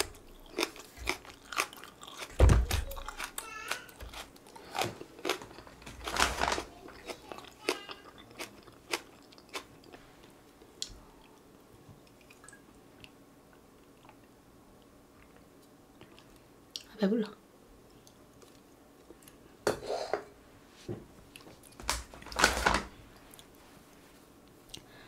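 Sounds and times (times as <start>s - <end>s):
crunchy chewing of green onion: 0.0s - 10.0s.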